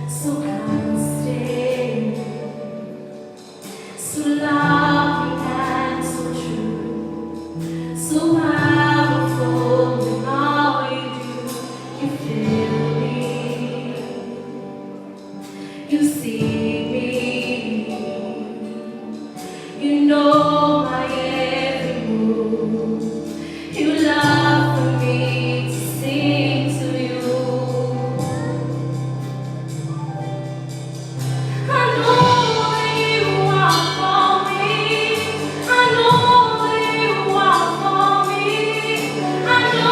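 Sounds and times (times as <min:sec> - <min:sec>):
gospel singing with accompaniment: 0:00.0 - 0:39.9.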